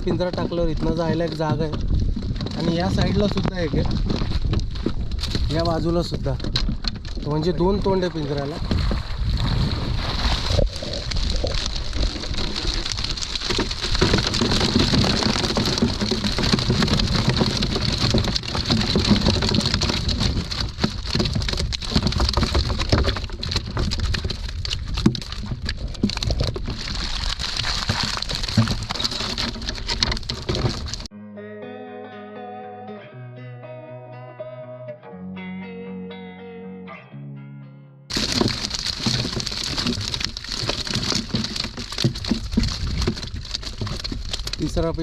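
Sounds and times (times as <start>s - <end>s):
water splashing: 7.6s - 31.1s, 38.1s - 44.6s
guitar music: 31.1s - 38.1s.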